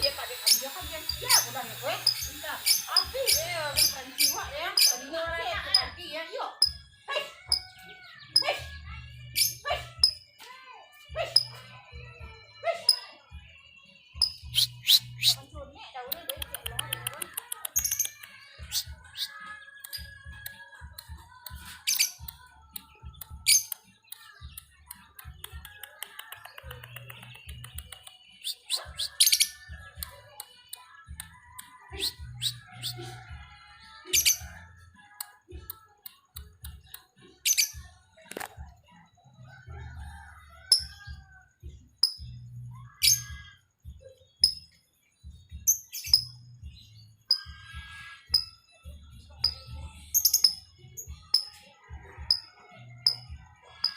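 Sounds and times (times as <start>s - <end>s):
lovebird chattering in dry ticks: 0.0s - 6.0s, 14.2s - 15.4s, 16.0s - 20.1s, 42.0s - 42.4s, 50.2s - 51.5s, 52.3s - 53.9s
lovebirds chirping: 0.0s - 10.2s, 14.0s - 30.7s, 44.3s - 53.9s.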